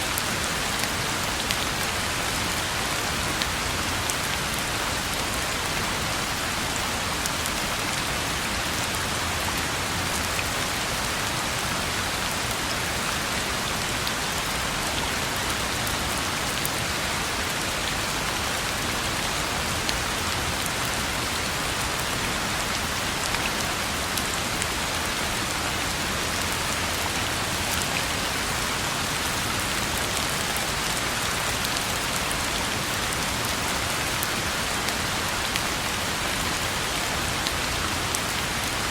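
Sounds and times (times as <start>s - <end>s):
rain falling on a road: 0.0s - 38.9s.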